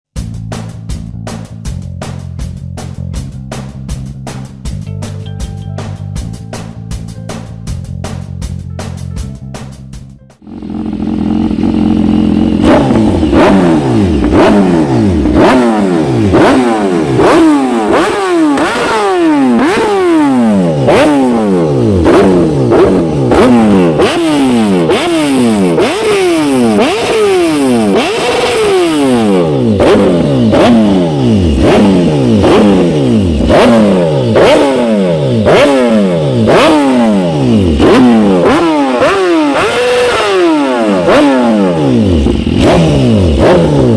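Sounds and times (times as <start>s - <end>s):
motorcycle engine revving: 10.4s - 43.9s.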